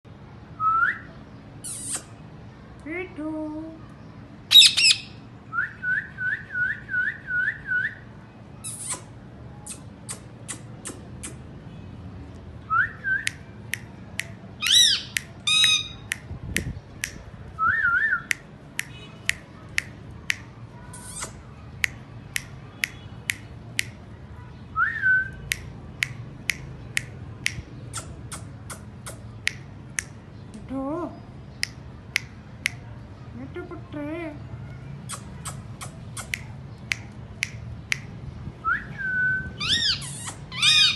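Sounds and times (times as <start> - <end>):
parrots chirping: 1.6 - 2.2, 4.5 - 5.2, 8.6 - 9.1, 14.6 - 16.2, 39.5 - 40.9
parrot whistled calls: 4.5 - 8.0, 14.6 - 16.1, 38.7 - 40.9
parrot harsh screech: 39.6 - 40.9.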